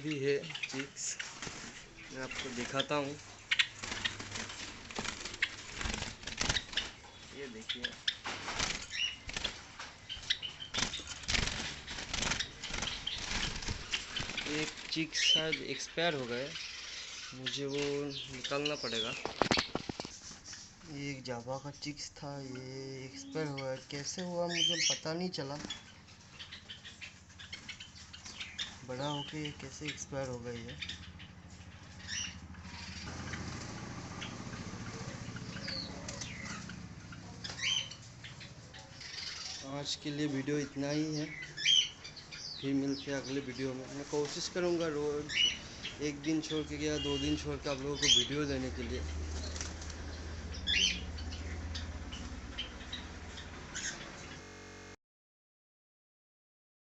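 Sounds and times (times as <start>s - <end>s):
birds fluttering wings: 0.6s - 21.0s, 25.5s - 40.7s, 43.1s - 54.4s
steady low hum: 39.7s - 55.0s.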